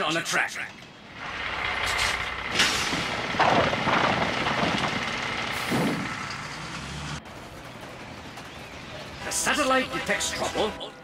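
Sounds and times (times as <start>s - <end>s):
cartoon train rumbling and hissing: 1.0s - 11.0s.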